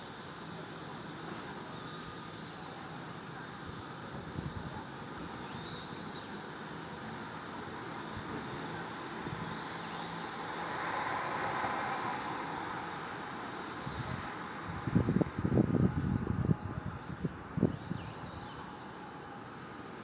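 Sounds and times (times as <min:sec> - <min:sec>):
road traffic noise: 0:06.4 - 0:20.0
vehicle passing: 0:10.6 - 0:13.0.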